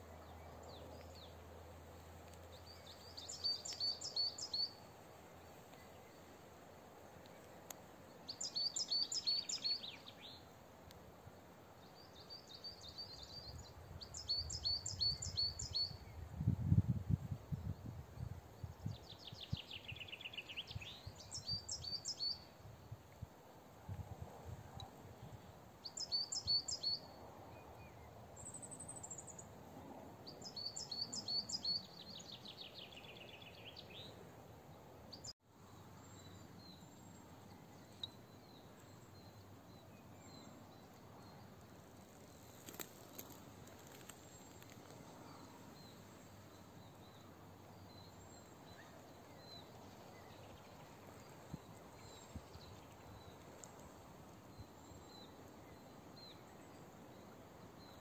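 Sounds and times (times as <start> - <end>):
outdoor background noise: 0.0 - 58.0
songbird singing: 0.0 - 58.0
faint bird chirps: 8.3 - 10.5, 11.8 - 16.3.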